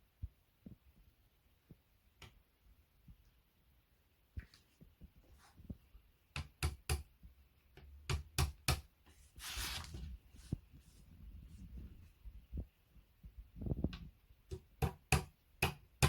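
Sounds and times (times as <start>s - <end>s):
scraping rustle: 9.2s - 11.8s.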